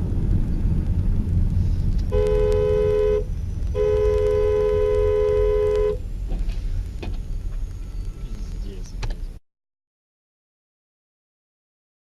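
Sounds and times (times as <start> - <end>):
car rumbling on road: 0.0 - 9.4
two-note car horn honking: 2.1 - 6.0.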